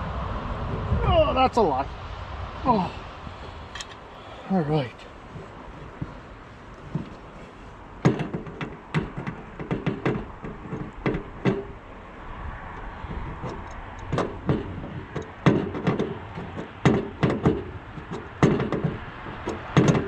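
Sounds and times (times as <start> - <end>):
metallic knocks and clanks: 3.4 - 4.3, 5.0 - 12.0, 12.8 - 20.0.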